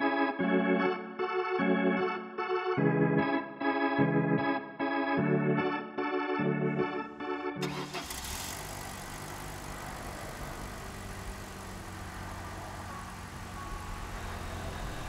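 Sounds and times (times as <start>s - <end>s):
car engine idling: 7.6s - 15.0s.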